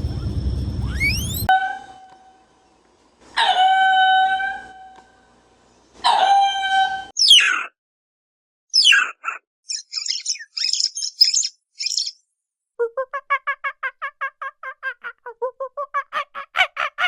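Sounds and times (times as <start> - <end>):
bird whistle: 0.1 - 1.5, 9.7 - 12.2
high bird chirps: 0.8 - 1.5, 7.2 - 7.7, 8.8 - 12.2
rapidly repeated bird call notes: 8.8 - 12.2.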